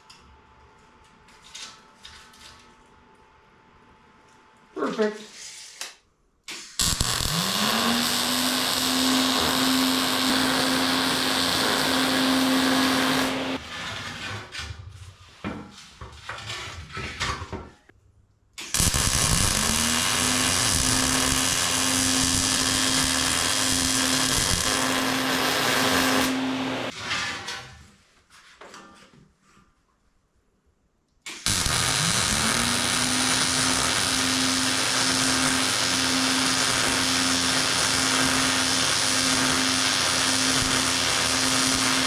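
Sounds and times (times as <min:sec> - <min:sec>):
angle grinder grinding steel: 0:06.8 - 0:13.6, 0:18.8 - 0:26.9, 0:31.5 - 0:42.0
grinder rattling: 0:06.8 - 0:13.6, 0:31.5 - 0:42.0.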